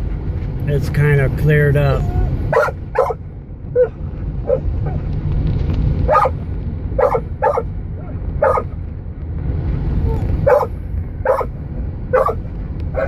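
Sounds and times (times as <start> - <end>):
car rumbling on the move: 0.0 - 13.0
dog barking: 2.5 - 3.2, 6.1 - 6.4, 7.0 - 7.7, 8.4 - 8.7, 10.4 - 11.5, 12.1 - 12.4.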